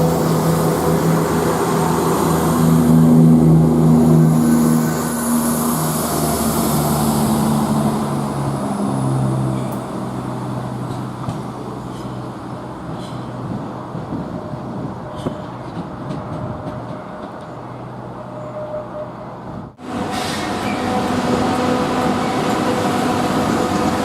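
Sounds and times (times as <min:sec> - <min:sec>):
train motor drone: 0:00.0 - 0:11.7, 0:19.8 - 0:24.0.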